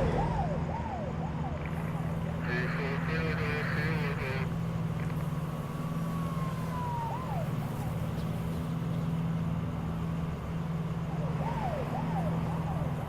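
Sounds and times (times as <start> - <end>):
faint siren wail: 0.0 - 13.0
vehicle engine humming: 0.0 - 13.0.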